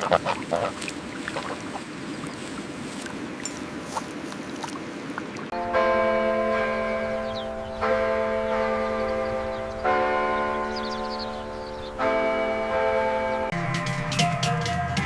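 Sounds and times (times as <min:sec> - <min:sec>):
bell tolling: 0:05.5 - 0:15.0.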